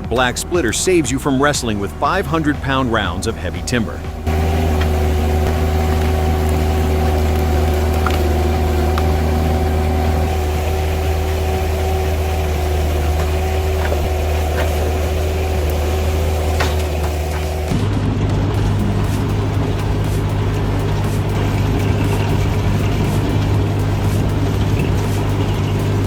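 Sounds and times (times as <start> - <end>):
log splitter engine running: 0.0 - 26.0.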